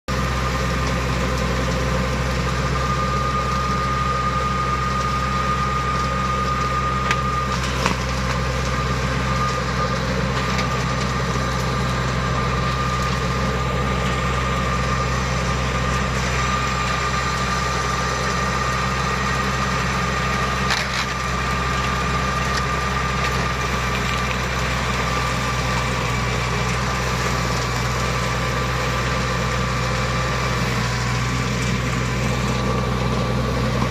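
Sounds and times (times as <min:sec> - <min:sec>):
mower engine running: 0:00.1 - 0:33.9.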